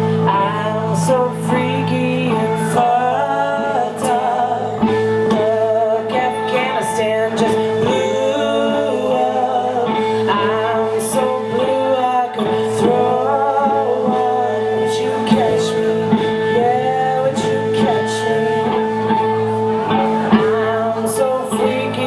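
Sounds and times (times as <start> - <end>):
drums: 0.0 - 22.0
guitar: 0.0 - 22.0
person singing gliding melody: 0.0 - 22.0.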